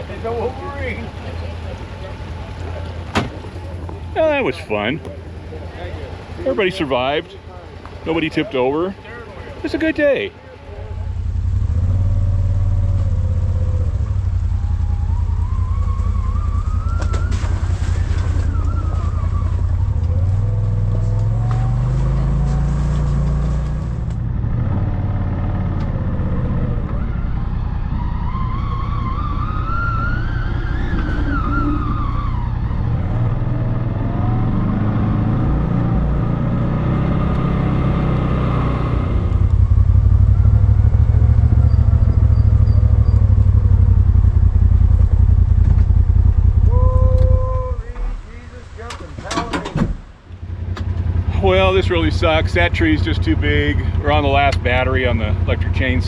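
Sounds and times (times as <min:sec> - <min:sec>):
off-road vehicle engine running: 0:00.0 - 0:56.0
engine whine rising and falling: 0:10.8 - 0:49.6.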